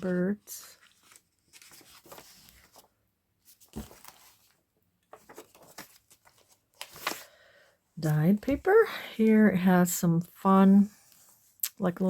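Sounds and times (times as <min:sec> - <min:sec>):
paper pages rustling: 0:00.0 - 0:07.5.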